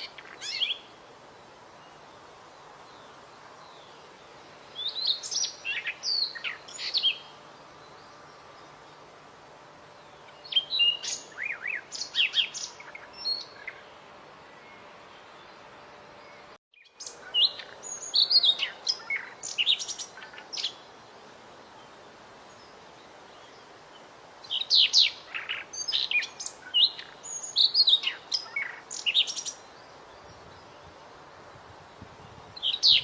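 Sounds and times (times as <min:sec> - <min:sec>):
songbird chirping and whistling: 0:00.0 - 0:00.9, 0:10.2 - 0:13.8, 0:16.7 - 0:20.8
faint steady hiss: 0:00.0 - 0:33.0.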